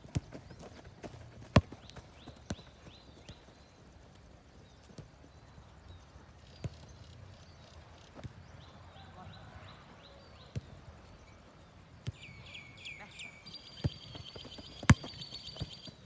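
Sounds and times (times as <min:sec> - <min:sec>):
foot kicking football: 0:00.0 - 0:03.5, 0:13.8 - 0:16.0.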